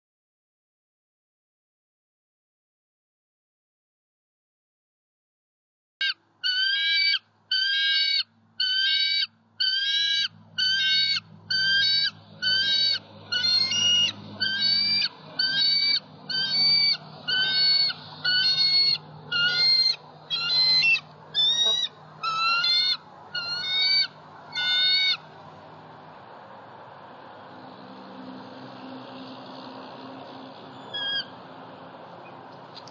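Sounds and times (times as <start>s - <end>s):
bird calling: 6.0s - 25.3s, 30.6s - 31.5s.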